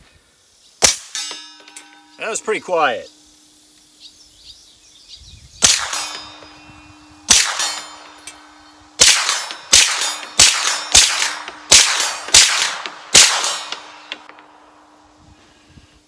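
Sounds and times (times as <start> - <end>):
suppressed gunshots: 5.6 - 6.4, 7.3 - 8.2, 9.0 - 14.4.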